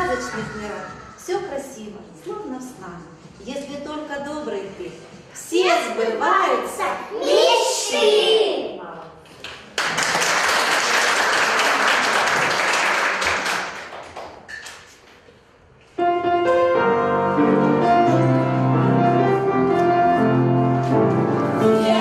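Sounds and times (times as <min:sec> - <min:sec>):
audience applauding: 0:09.7 - 0:14.5
piano chords and melody: 0:16.0 - 0:22.0.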